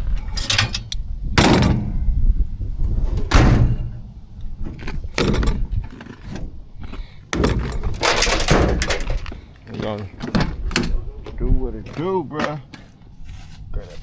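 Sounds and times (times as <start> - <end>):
low rumble of handling: 0.0 - 12.1
objects knocking and thudding: 4.6 - 6.5, 7.3 - 12.9.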